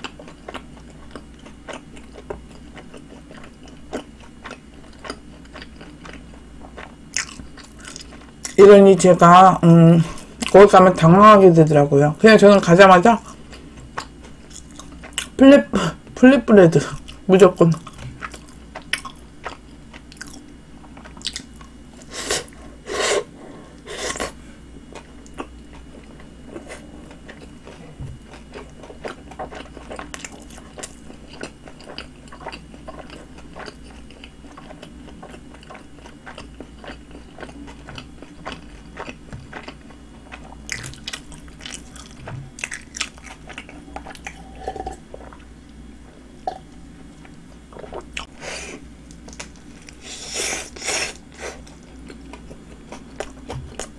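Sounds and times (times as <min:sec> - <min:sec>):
person chewing and biting sandwich: 0:00.0 - 0:08.6, 0:17.8 - 0:22.6, 0:24.0 - 0:45.6, 0:47.2 - 0:53.9.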